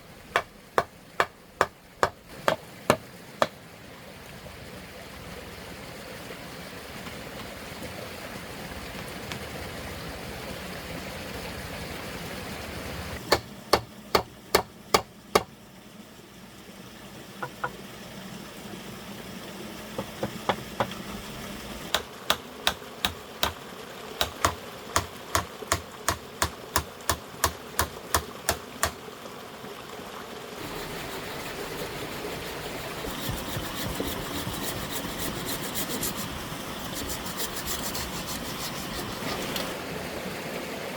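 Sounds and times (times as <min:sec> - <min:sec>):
sharp knocks of striking: 0:00.3 - 0:03.5, 0:13.2 - 0:15.5.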